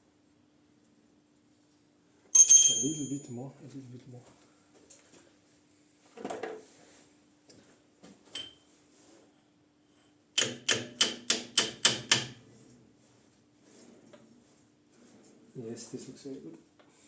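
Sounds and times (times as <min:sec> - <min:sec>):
metal clink: 0:02.4 - 0:03.3.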